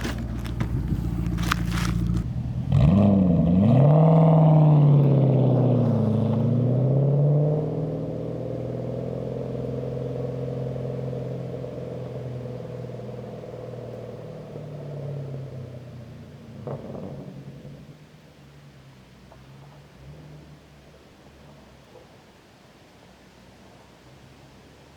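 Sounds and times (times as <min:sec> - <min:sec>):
car engine revving: 0:00.0 - 0:17.8.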